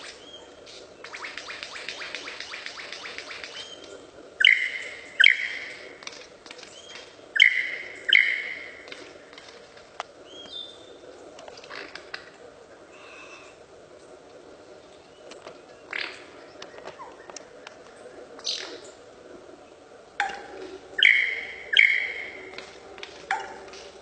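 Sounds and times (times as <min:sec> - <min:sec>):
harsh bird calls: 0:00.0 - 0:12.2, 0:20.2 - 0:24.0.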